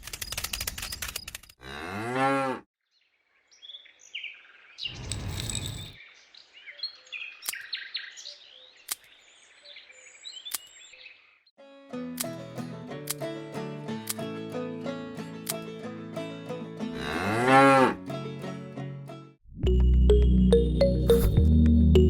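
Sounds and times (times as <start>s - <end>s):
cow mooing: 1.6s - 2.6s, 16.9s - 18.0s
small birds chirping: 2.9s - 11.4s.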